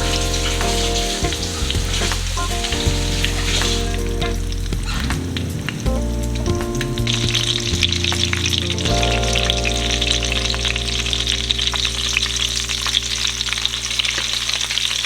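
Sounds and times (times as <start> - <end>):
chicken frying in oil: 12.8 - 15.0.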